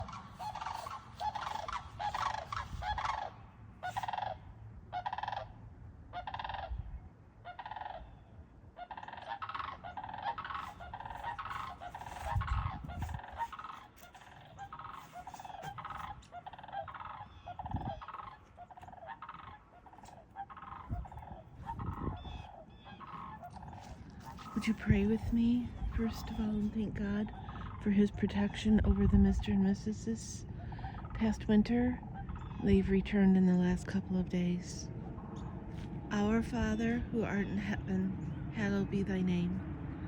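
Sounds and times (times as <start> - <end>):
geese honking: 0.0 - 39.6
low rumbles: 9.7 - 40.0.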